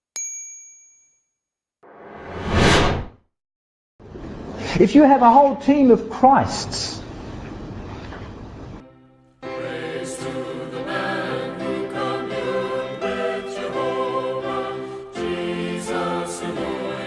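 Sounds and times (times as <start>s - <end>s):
choir singing a slow hymn: 9.4s - 17.0s.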